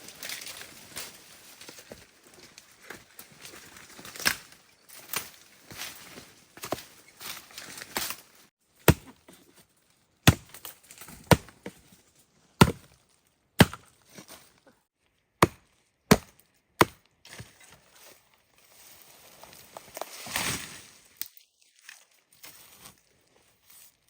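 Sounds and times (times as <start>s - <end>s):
blade chopping wood: 8.8s - 9.3s, 10.3s - 11.8s, 12.6s - 13.0s, 13.6s - 14.0s, 15.4s - 17.5s.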